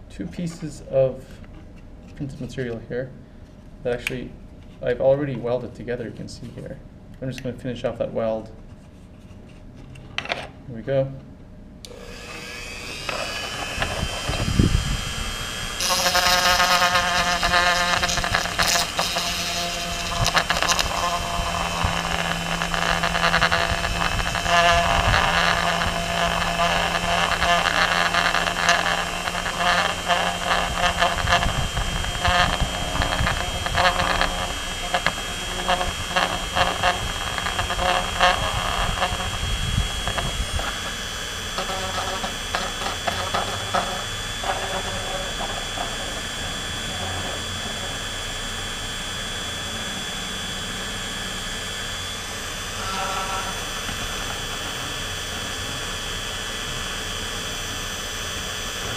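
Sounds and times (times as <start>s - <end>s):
rotary tool whining: 11.8s - 58.9s
plastic scraping on plastic: 15.8s - 47.9s.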